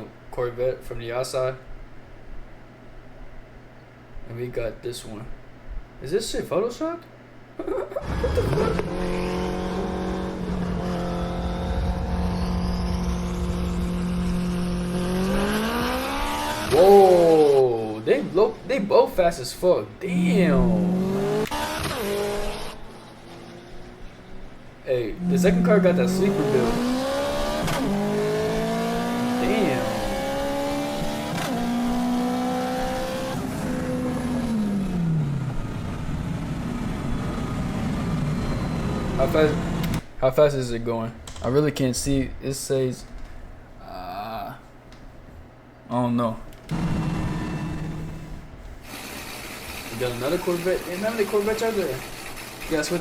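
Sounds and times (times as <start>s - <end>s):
car engines at high revs: 8.0s - 18.9s, 20.1s - 40.0s, 46.7s - 53.0s
road and wind noise: 8.0s - 19.0s, 20.5s - 40.1s, 46.6s - 49.9s.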